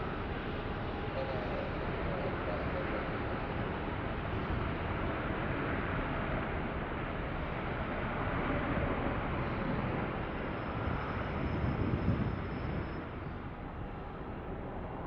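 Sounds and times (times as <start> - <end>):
jet engine rush: 0.0 - 15.0.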